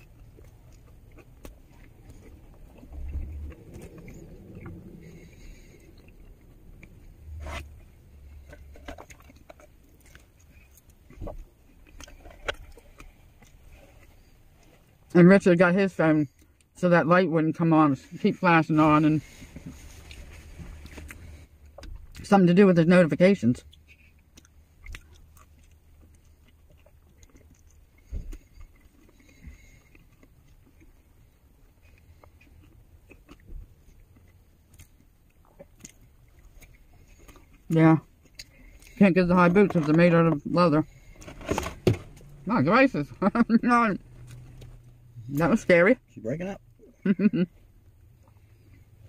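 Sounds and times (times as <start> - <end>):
rustling and scraping of handling: 0.0 - 15.1, 17.8 - 22.1, 35.9 - 43.2
chewing food: 0.0 - 16.8, 18.8 - 22.2, 23.6 - 43.3, 43.9 - 45.6, 46.6 - 49.0
low steady hum: 0.0 - 49.0.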